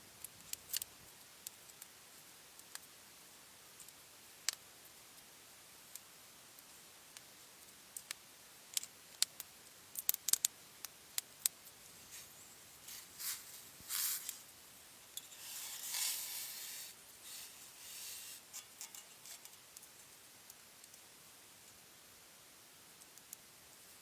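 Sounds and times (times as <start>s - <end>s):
sharp clicks and snaps: 0.2s - 1.8s, 8.0s - 10.5s
scraping rustles: 11.8s - 19.7s.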